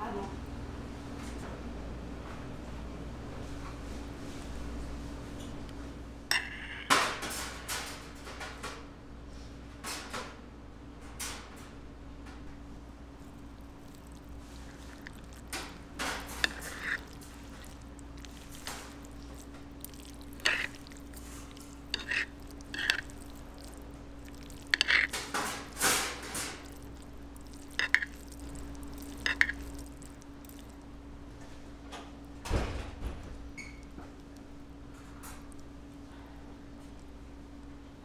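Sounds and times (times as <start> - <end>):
steady low hum: 11.7 - 38.0.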